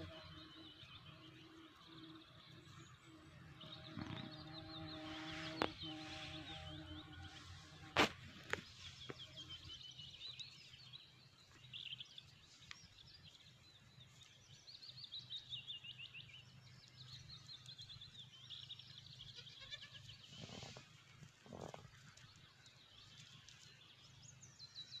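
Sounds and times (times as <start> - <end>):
drawn-out animal call: 19.3 - 22.0.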